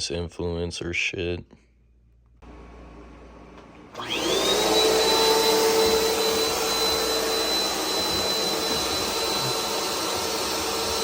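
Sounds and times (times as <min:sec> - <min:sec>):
vacuum cleaner running: 0:02.4 - 0:11.0.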